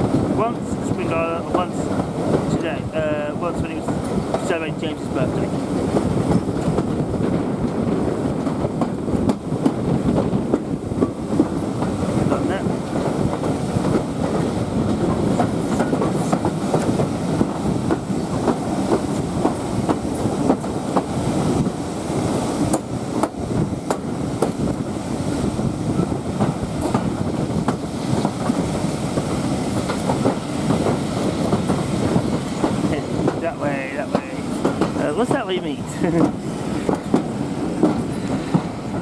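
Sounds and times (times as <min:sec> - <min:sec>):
train wheels rumbling on track: 0:00.0 - 0:39.0
wheels clicking over rail joints: 0:26.4 - 0:39.0.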